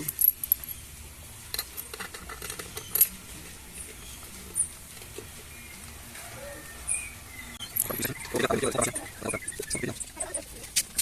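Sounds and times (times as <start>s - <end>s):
metal bolts clicking and clinking: 0.0s - 0.8s, 1.5s - 3.2s, 7.6s - 9.0s.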